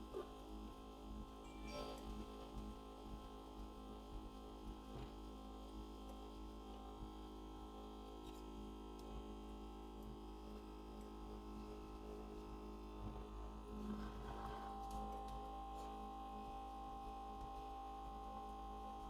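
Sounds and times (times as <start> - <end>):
machine electrical hum: 0.0 - 19.0
high machine whine: 12.9 - 19.0.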